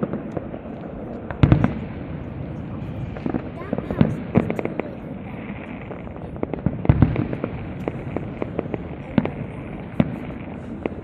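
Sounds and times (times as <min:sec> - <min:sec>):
fireworks crackling and banging: 0:00.0 - 0:11.0.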